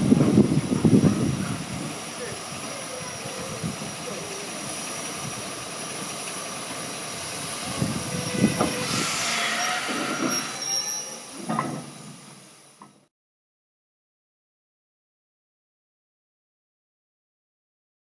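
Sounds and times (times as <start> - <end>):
steam hissing rush: 0.0 - 13.1
train wheels squealing on rails: 7.2 - 12.9
knocks and clanks: 11.4 - 12.0.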